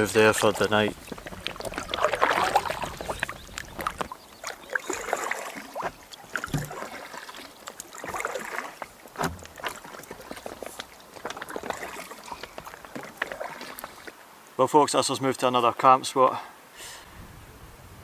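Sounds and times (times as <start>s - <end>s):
kayak paddle splashing: 0.0s - 14.2s
water trickling off paddle: 0.0s - 14.2s.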